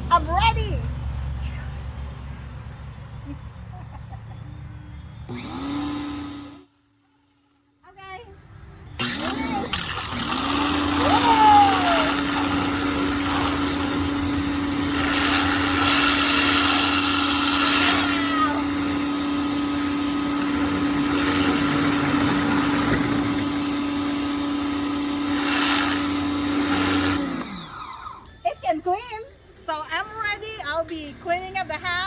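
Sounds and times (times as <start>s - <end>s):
pressure washer motor humming: 5.2s - 6.7s, 8.9s - 29.1s, 30.2s - 32.0s
water spray hissing: 9.0s - 27.2s.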